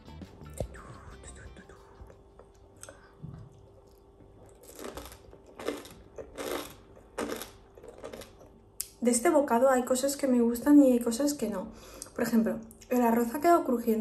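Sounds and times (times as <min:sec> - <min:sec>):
chewing crisp food: 0:01.4 - 0:09.0.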